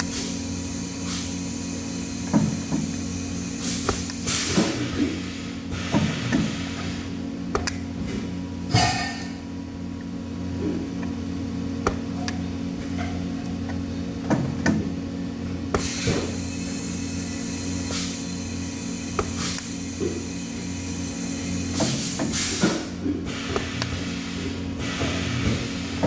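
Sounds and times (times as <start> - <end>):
steady machine hum: 0.0 - 26.0
short hissing: 1.0 - 1.9, 3.0 - 7.0, 15.8 - 25.8.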